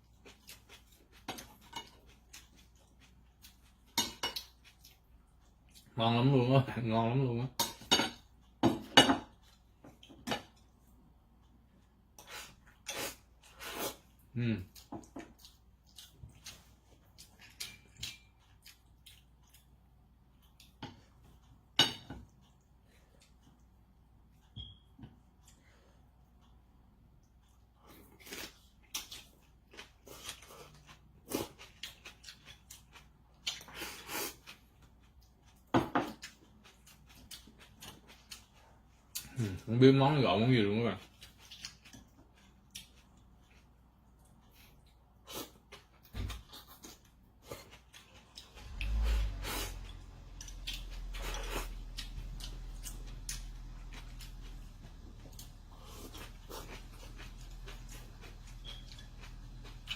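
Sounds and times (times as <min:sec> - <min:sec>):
utensils clinking against a dish: 0:07.5 - 0:09.4.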